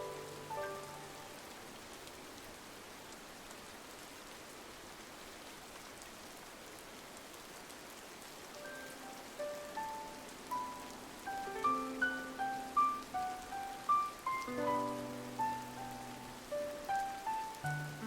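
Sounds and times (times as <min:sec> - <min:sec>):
soft music notes: 0:00.0 - 0:01.4, 0:08.6 - 0:18.0
rain on a window: 0:00.0 - 0:18.0.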